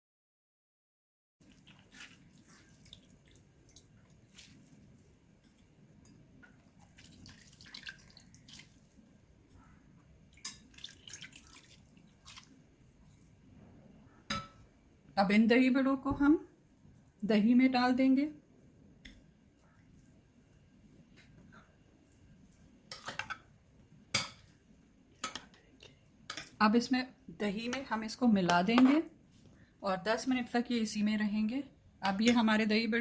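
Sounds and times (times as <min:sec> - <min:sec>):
water dripping from squeezed food: 0:01.4 - 0:04.8, 0:06.4 - 0:09.0, 0:10.3 - 0:12.6.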